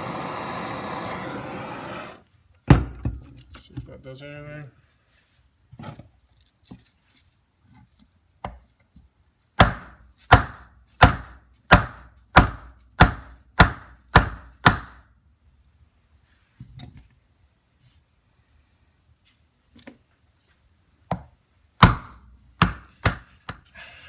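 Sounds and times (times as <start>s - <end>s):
hammer striking hardwood block: 9.6s - 15.0s, 21.8s - 23.6s.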